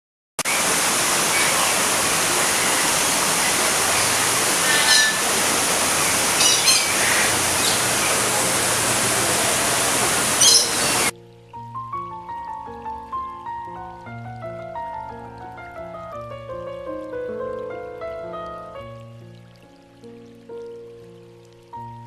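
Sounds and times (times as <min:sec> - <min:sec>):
rushing water: 0:00.4 - 0:22.0
short bird calls: 0:00.6 - 0:11.1.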